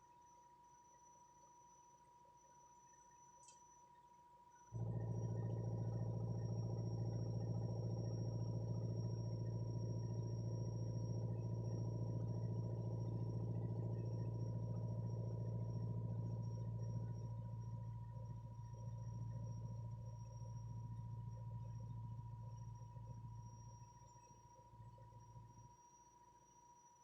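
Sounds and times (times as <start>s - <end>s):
backhoe engine humming: 4.8s - 16.4s.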